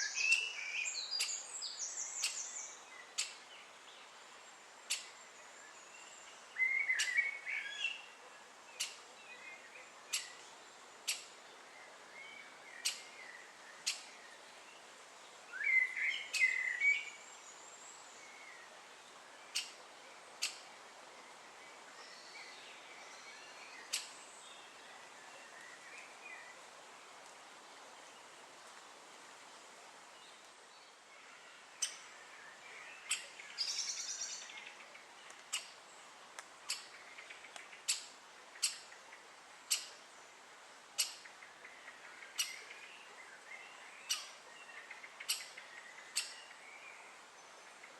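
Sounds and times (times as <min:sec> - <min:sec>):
woodpecker calling: 0:02.2 - 0:02.5, 0:06.6 - 0:08.0, 0:08.8 - 0:09.0, 0:10.1 - 0:11.3, 0:12.8 - 0:13.2, 0:13.8 - 0:14.1, 0:19.5 - 0:19.8, 0:20.4 - 0:20.6, 0:23.8 - 0:24.2, 0:33.0 - 0:34.3, 0:35.3 - 0:35.8, 0:36.6 - 0:38.9, 0:39.7 - 0:40.0, 0:41.0 - 0:41.4, 0:42.3 - 0:42.8, 0:44.0 - 0:46.5.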